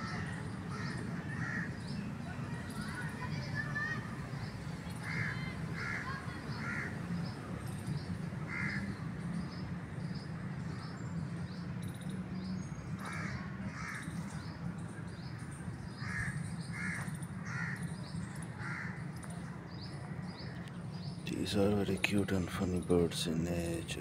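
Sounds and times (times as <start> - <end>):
birds cawing: 0.0 - 4.1, 5.0 - 7.0, 8.5 - 9.0, 13.0 - 14.5, 15.9 - 18.0, 18.6 - 19.1.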